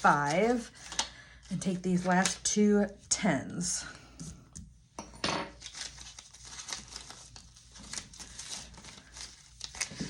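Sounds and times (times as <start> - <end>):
paper banknotes rustling: 0.0 - 2.5, 5.6 - 10.0.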